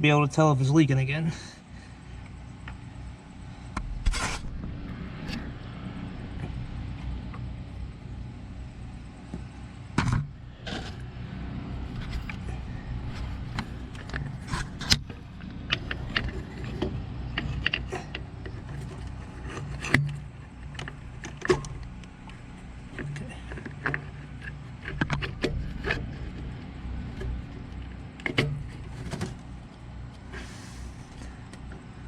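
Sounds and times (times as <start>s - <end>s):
steady low hum: 0.0s - 32.0s
metal clicks and clunks: 11.9s - 30.2s.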